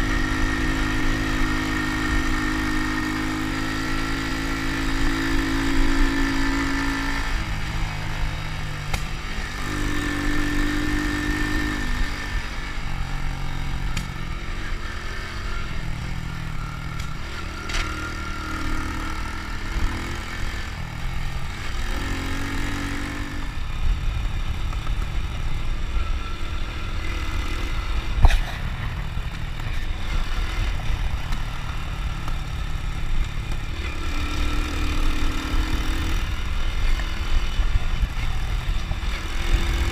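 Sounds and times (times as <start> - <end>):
low rumble of wind and road: 0.0 - 39.9
motorcycle engine running: 0.0 - 39.9.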